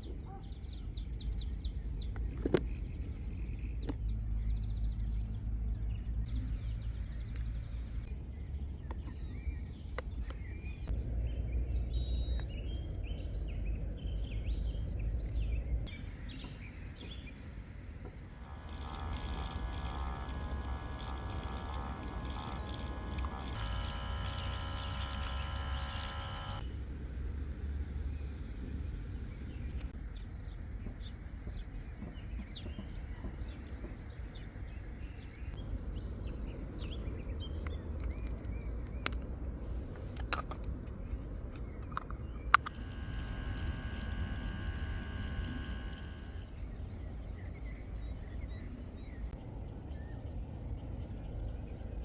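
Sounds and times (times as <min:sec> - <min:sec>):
sharp clicks: 0:18.3 - 0:26.6, 0:41.6 - 0:46.8.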